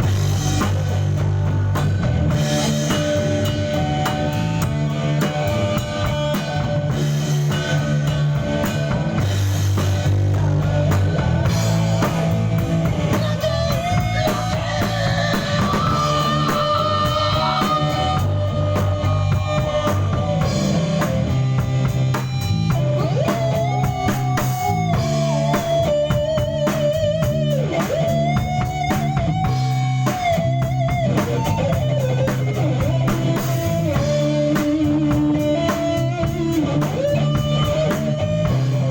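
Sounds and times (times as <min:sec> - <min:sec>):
bass guitar: 0:00.0 - 0:38.9
drum kit: 0:00.0 - 0:38.9
guitar: 0:00.0 - 0:38.9.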